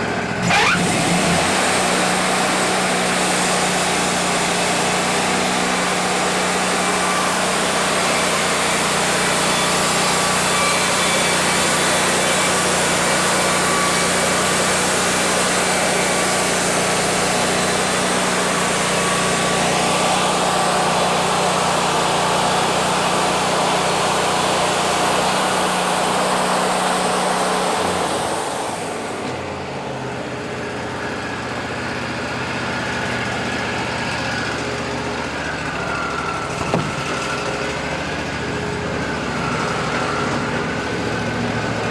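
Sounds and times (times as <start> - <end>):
sawmill engine hum: 0.0 - 41.9
band saw blade cutting log: 0.4 - 23.6, 36.4 - 37.8.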